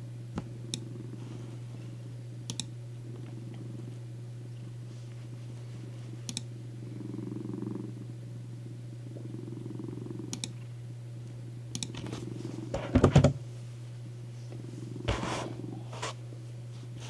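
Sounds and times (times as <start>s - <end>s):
cat purring: 0.7s - 2.0s, 3.0s - 10.8s, 14.6s - 16.1s.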